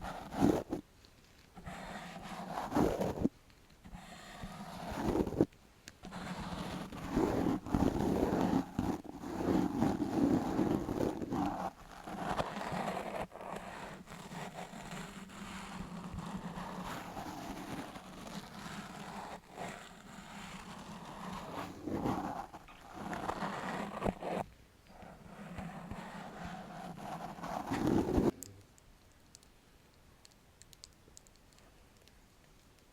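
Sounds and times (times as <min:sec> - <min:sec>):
brush rustling over microphone: 0:25.2 - 0:28.4.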